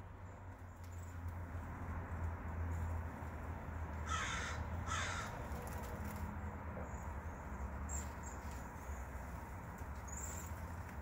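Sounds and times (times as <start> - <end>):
harsh bird calls: 4.0 - 6.2
thin high bird calls: 9.9 - 11.0.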